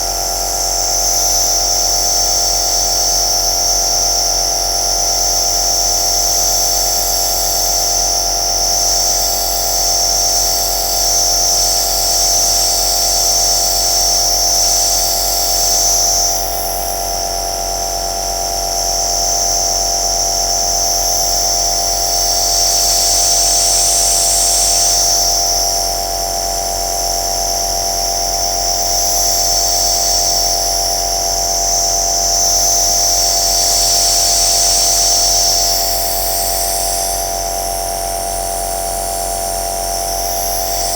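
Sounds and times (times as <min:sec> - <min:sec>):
nebulizer motor hum: 0:00.0 - 0:40.9.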